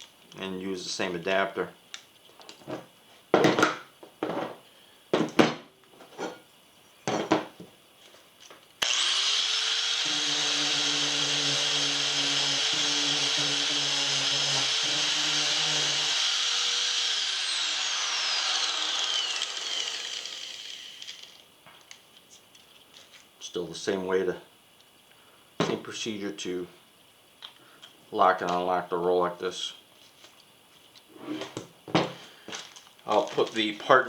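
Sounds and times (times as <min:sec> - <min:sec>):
angle grinder whining: 0:08.8 - 0:21.4.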